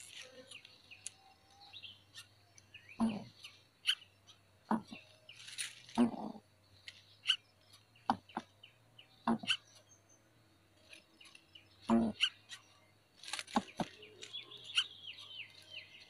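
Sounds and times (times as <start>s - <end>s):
high bird chirps: 13.4s - 16.0s.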